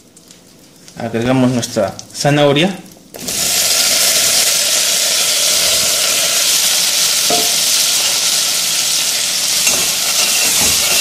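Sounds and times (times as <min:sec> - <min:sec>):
carrots sizzling in butter: 0:03.2 - 0:11.0.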